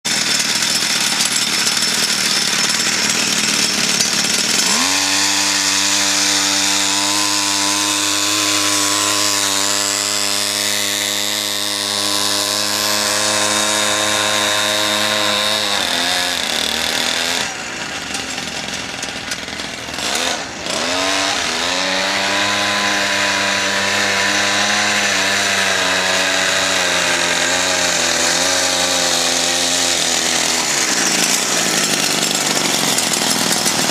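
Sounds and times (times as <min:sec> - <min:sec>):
two-stroke minibike engine: 0:00.0 - 0:33.9.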